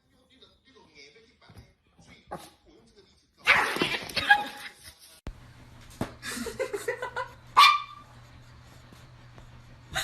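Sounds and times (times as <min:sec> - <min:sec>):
dog bark: 0:07.6 - 0:08.0
dog yipping: 0:07.6 - 0:08.0.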